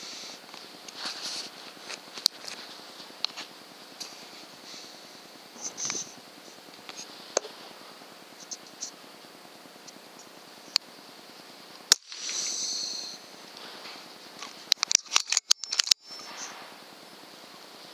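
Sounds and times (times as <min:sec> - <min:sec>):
high hissing: 0:00.0 - 0:17.9
sharp clicks: 0:11.8 - 0:13.0, 0:14.4 - 0:16.5.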